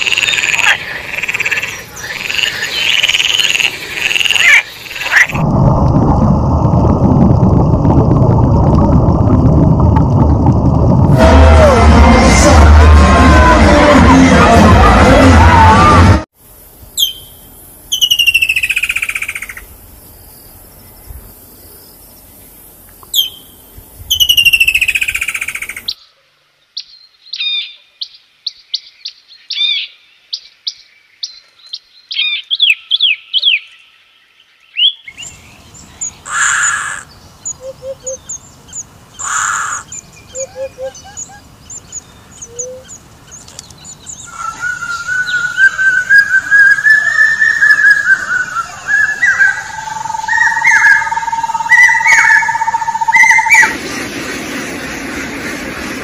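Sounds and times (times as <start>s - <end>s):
mixed bird calls: 0.0s - 5.4s, 17.0s - 19.7s, 34.7s - 53.8s
rising bird whistle: 17.0s - 19.5s, 44.2s - 53.8s
rapid bird chirps: 17.0s - 19.6s.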